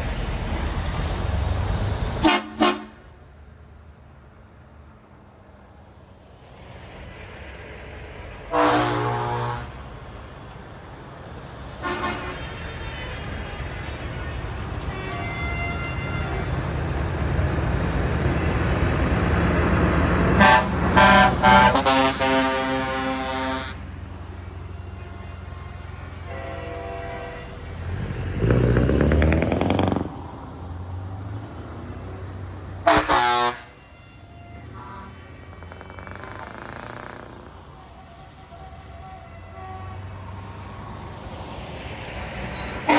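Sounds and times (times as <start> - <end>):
truck engines rumbling: 0.0 - 42.9
truck horn blast: 2.2 - 3.1, 8.5 - 9.8, 11.8 - 13.3, 14.9 - 16.6, 20.2 - 24.0, 24.7 - 28.7, 32.8 - 36.5.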